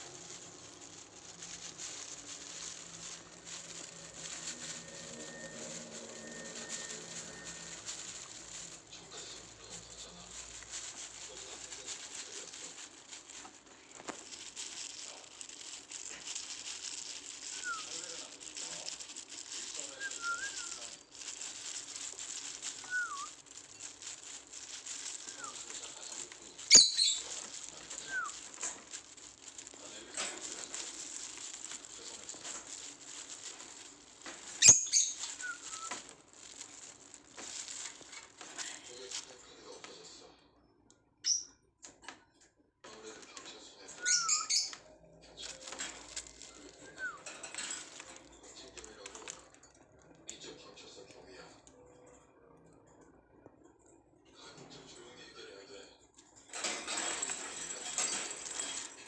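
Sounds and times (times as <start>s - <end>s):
bird rustling on wooden perch: 0.0s - 39.3s, 45.4s - 49.5s, 56.5s - 59.0s.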